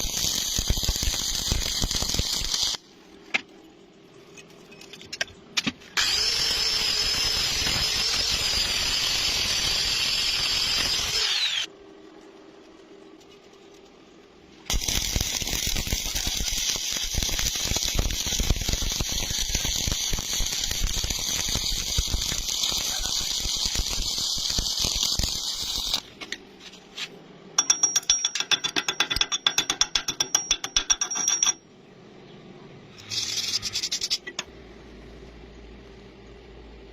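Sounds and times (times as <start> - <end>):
arc welding crackling: 0.0 - 2.9, 5.9 - 26.9.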